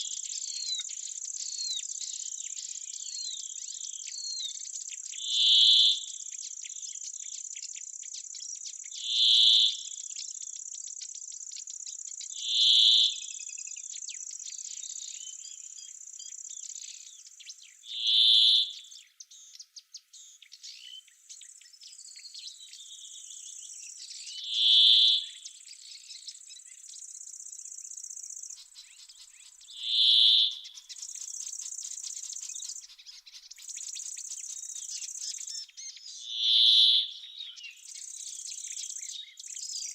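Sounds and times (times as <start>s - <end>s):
faint bird chirps: 0.0s - 39.9s
high-pitched insect trill: 27.1s - 33.0s.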